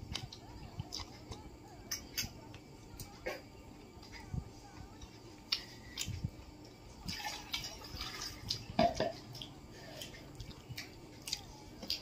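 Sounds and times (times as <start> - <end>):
person chewing with wet smacks: 0.0 - 3.2, 7.5 - 12.0.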